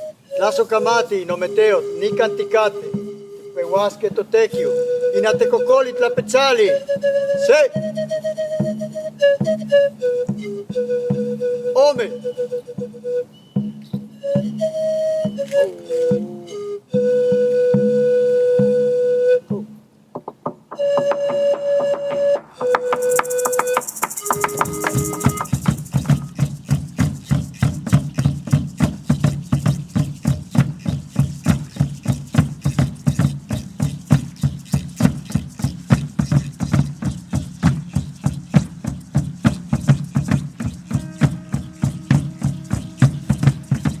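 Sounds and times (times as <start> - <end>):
steady drumbeat: 19.5 - 44.0
brief pitched notes: 20.8 - 26.5.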